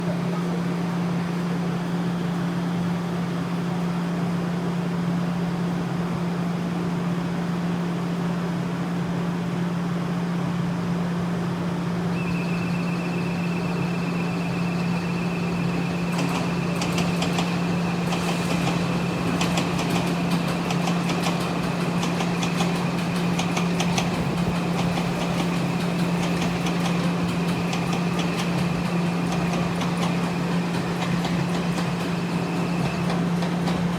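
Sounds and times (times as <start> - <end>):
electric train whine: 11.0 - 33.9
steady low hum: 12.0 - 33.9
train wheels clicking over rail joints: 15.1 - 33.9.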